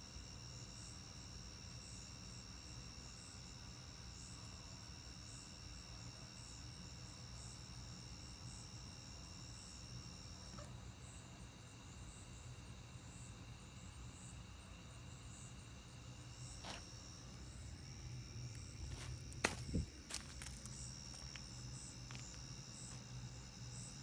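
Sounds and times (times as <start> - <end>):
night insects chirring: 0.0 - 24.0
low even hum: 14.5 - 24.0.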